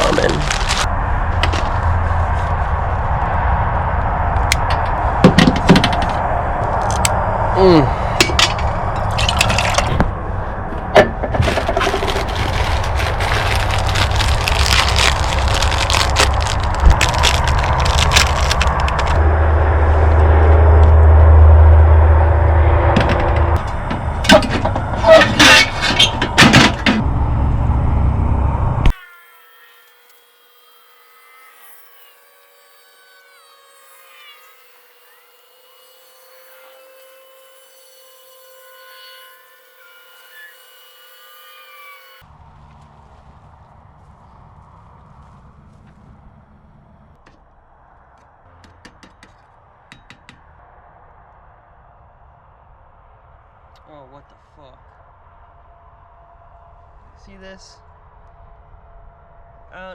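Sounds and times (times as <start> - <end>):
dry noodles cracking and crackling: 0.0 - 0.9, 11.6 - 19.2
steady low rumble: 0.0 - 28.9, 50.6 - 59.9.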